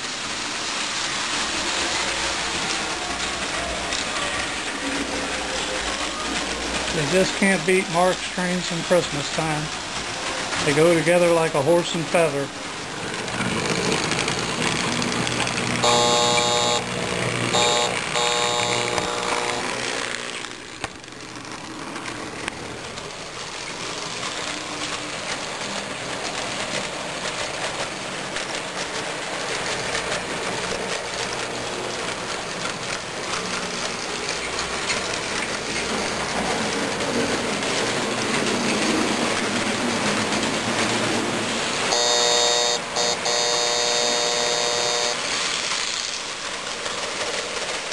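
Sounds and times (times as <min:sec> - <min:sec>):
toy train rumbling on track: 0:00.0 - 0:47.9
toy train horn blasts: 0:15.8 - 0:19.9, 0:41.9 - 0:45.7.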